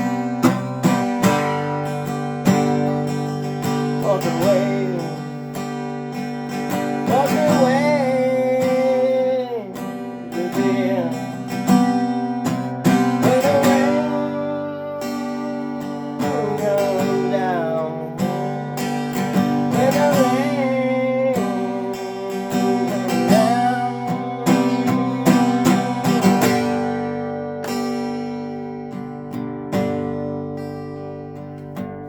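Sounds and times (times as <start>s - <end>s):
strummed acoustic guitar: 0.0s - 32.0s.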